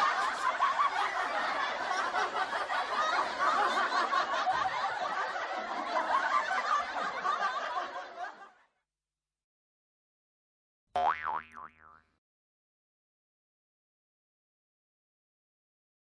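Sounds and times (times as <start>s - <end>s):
crowd laughing: 0.0s - 8.8s.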